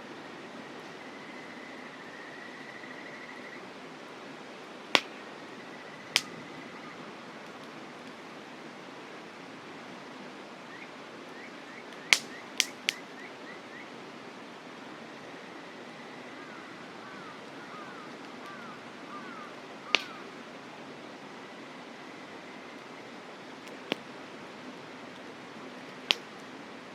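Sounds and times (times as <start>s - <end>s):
campfire wood popping: 5.0s - 5.3s, 6.1s - 6.4s, 12.0s - 13.0s, 19.9s - 20.3s, 23.6s - 24.4s, 25.2s - 26.4s.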